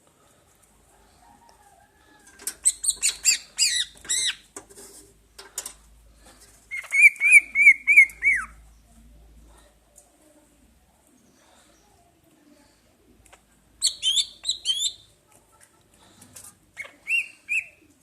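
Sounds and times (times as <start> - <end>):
songbird singing: 6.7 - 9.1, 13.8 - 15.2.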